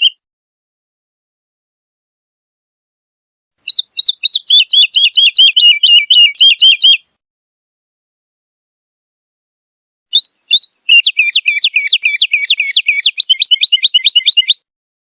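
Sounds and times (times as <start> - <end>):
bird singing whistled notes: 3.7 - 7.1, 10.1 - 14.7.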